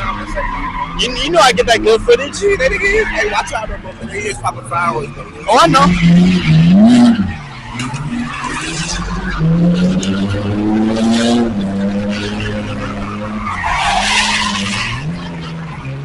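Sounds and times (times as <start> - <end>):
car engine revving high: 0.0 - 16.0
tires skidding and screeching: 0.0 - 16.0.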